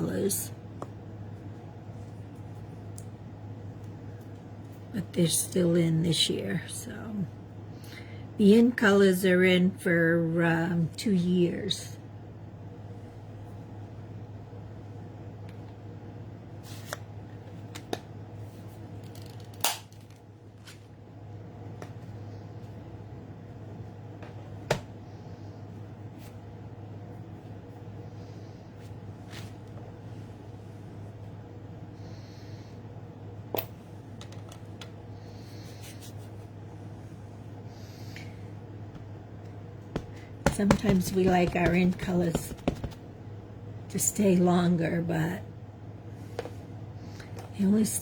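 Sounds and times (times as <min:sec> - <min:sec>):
steady low hum: 0:00.0 - 0:48.0
soft breaths: 0:35.1 - 0:38.6.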